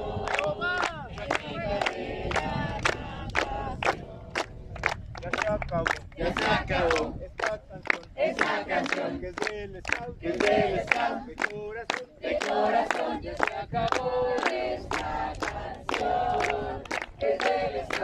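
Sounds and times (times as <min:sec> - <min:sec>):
young voices chanting and singing: 0:00.0 - 0:04.4, 0:06.2 - 0:07.2, 0:08.1 - 0:09.4, 0:10.1 - 0:11.4, 0:12.1 - 0:18.0.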